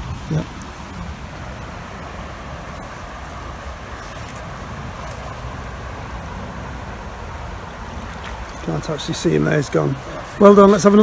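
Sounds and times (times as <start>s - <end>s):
fast-flowing river rushing: 0.0s - 11.0s.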